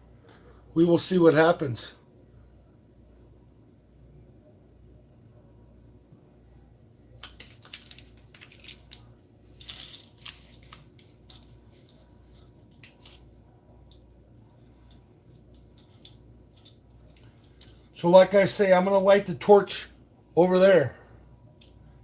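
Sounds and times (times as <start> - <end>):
small metal pieces clinking: 7.3 - 9.0, 9.6 - 13.1.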